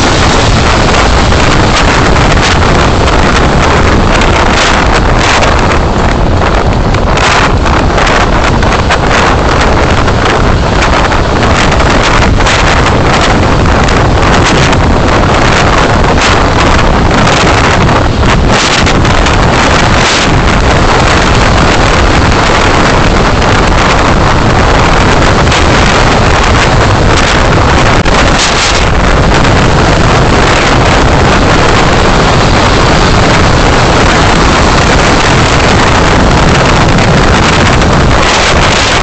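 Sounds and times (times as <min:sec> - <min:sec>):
car road and wind noise: 0:00.0 - 0:39.0.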